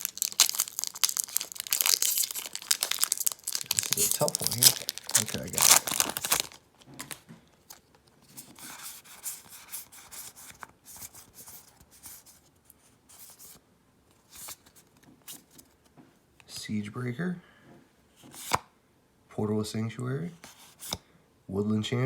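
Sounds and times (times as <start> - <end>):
foil wrapper rustling: 0.0 - 8.1
cards sliding against each other: 18.2 - 18.7, 20.4 - 21.0.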